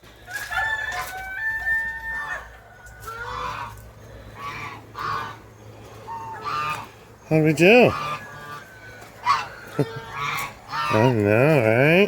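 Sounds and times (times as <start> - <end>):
short chicken calls: 0.2 - 7.0, 7.8 - 11.2
rooster crowing: 0.3 - 3.7, 8.0 - 10.9.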